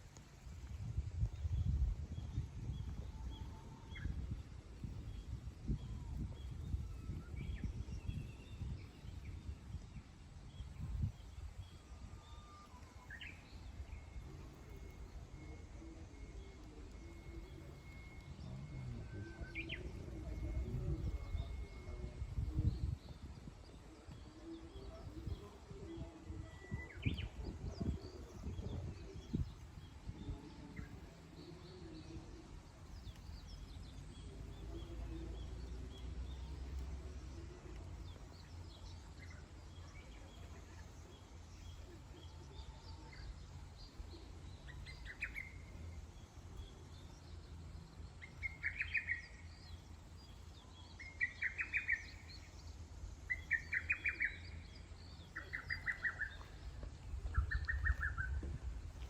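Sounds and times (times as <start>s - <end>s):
birds chirping and calling: 53.3s - 59.0s.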